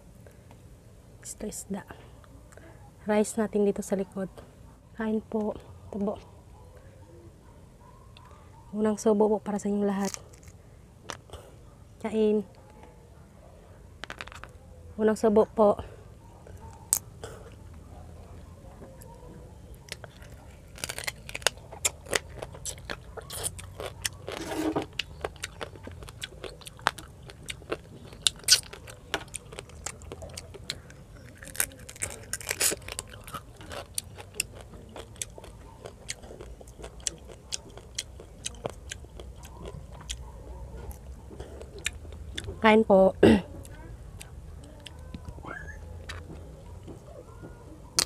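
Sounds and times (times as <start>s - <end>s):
chewing crunches: 10.0s - 11.5s, 16.5s - 42.6s, 46.0s - 47.1s.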